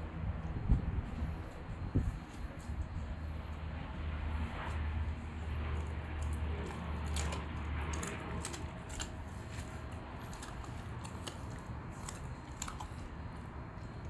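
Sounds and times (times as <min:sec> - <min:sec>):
dog chewing and licking: 0:04.5 - 0:14.0.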